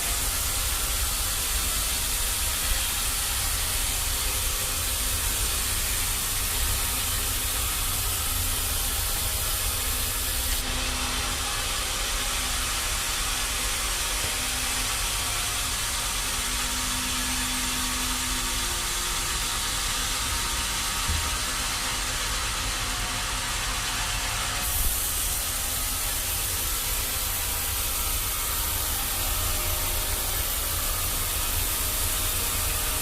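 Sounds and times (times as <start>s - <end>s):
sawmill machinery running: 0.0s - 33.0s.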